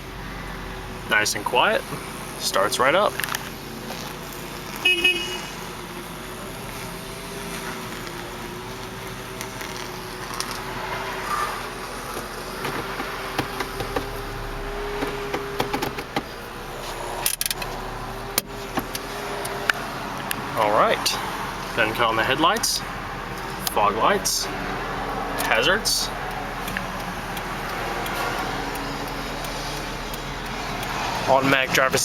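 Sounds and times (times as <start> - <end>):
car engine idling: 0.0 - 32.0
sharp clicks: 26.2 - 31.0.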